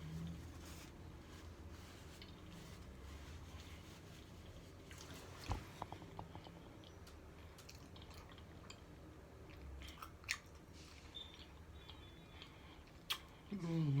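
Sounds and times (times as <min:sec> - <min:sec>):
chewing and biting food: 0:05.8 - 0:13.3.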